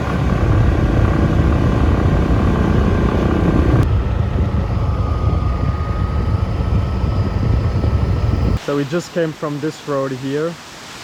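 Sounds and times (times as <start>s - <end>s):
motorbike engine: 0.0s - 8.6s
wind rumbling on microphone: 0.0s - 8.6s.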